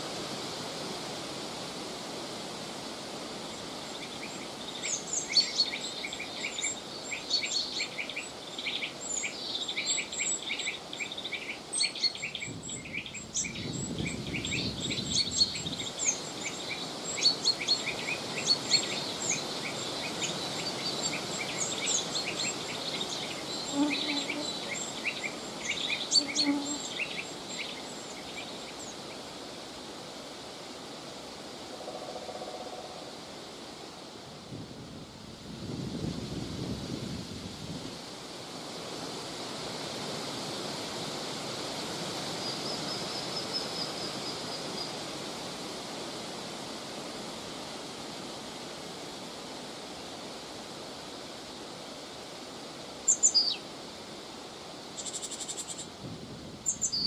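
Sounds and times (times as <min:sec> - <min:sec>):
wind hissing: 0:00.0 - 0:31.7, 0:32.8 - 0:57.0
birds chirping: 0:03.9 - 0:29.2.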